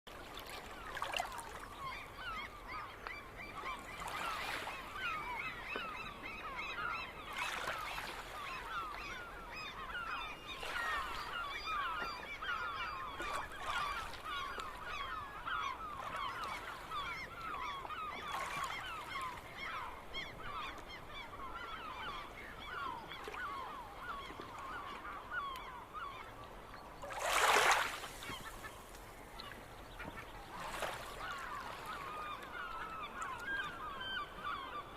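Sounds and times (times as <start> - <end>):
gulls calling: 0.6 - 34.9.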